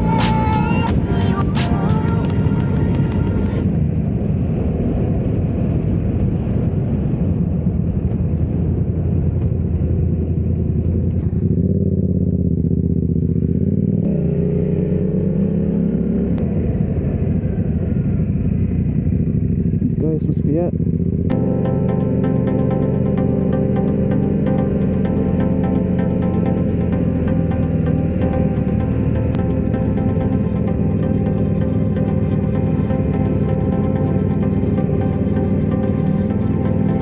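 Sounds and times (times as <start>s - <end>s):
rushing wind: 0.0s - 11.3s
motorcycle engine running: 7.8s - 37.0s.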